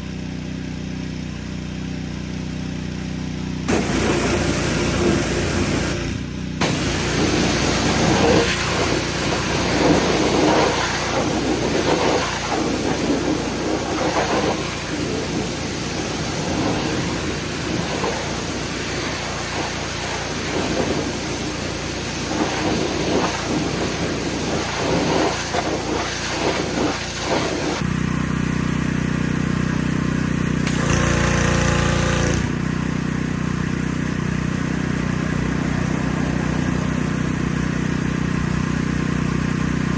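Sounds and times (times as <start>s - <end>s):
engine running: 0.0s - 39.9s
hiss: 3.7s - 6.0s, 6.6s - 27.8s.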